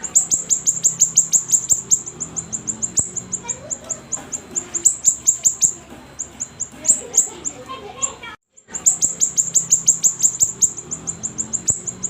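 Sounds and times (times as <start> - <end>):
songbird chipping: 0.0 - 12.0.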